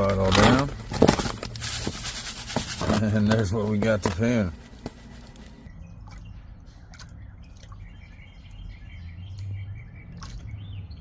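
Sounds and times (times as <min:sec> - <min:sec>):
birds chirping: 0:02.9 - 0:11.0.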